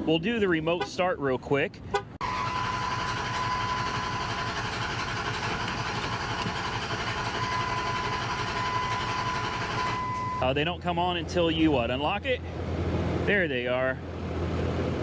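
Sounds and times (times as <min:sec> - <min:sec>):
pickup engine idling: 0:02.2 - 0:12.5.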